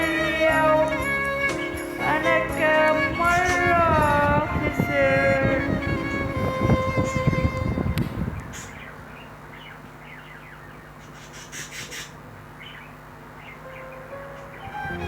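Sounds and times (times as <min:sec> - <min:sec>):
music: 0:00.0 - 0:08.0, 0:13.7 - 0:15.0
steady low hum: 0:00.0 - 0:15.0
birds chirping: 0:00.1 - 0:15.0.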